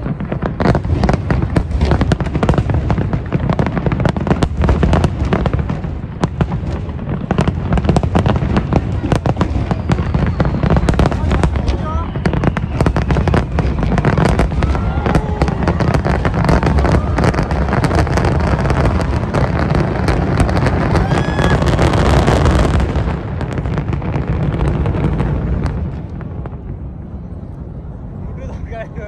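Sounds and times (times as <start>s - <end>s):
fireworks bangs and crackling: 0.0s - 29.0s
firework whistles: 8.7s - 23.1s.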